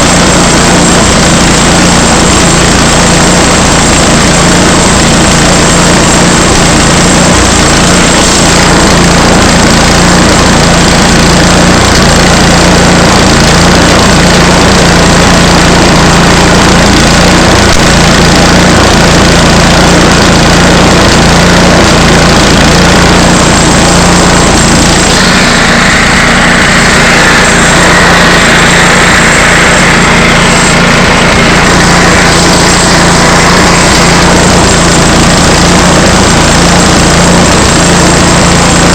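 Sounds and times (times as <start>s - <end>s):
small gas engine running: 0.0s - 38.9s.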